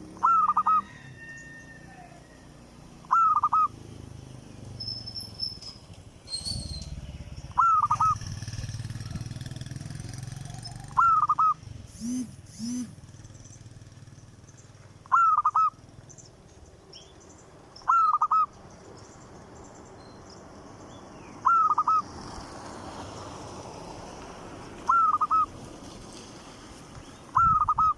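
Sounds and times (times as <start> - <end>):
short low bird calls: 0.1 - 0.9, 3.0 - 3.7, 6.3 - 8.3, 10.6 - 13.6, 15.0 - 15.8, 17.8 - 18.6, 21.4 - 22.0, 24.9 - 25.5, 27.3 - 27.9.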